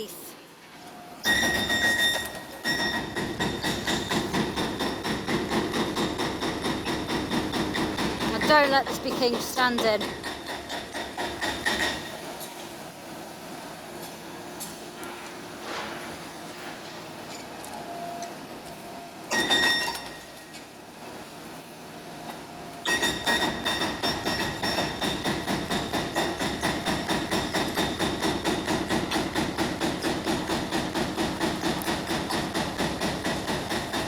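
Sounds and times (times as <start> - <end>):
rapid metallic hammering: 2.9 - 12.1, 23.0 - 34.0.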